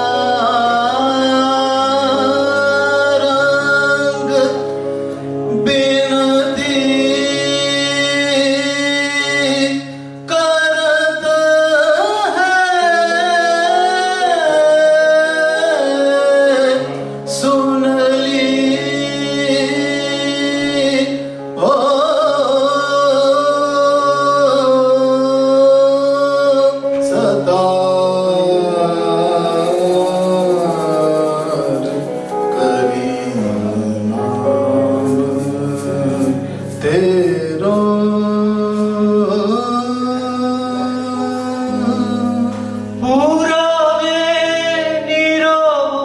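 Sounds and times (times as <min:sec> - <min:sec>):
raga singing with long held notes: 0:00.0 - 0:46.0.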